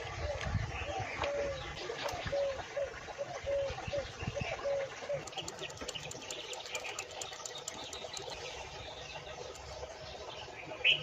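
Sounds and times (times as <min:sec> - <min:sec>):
light rapid clicks: 0:05.2 - 0:08.6.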